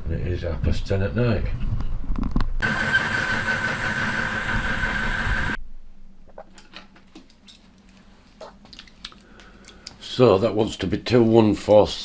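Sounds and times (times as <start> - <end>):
lathe motor whining: 2.6 - 5.6.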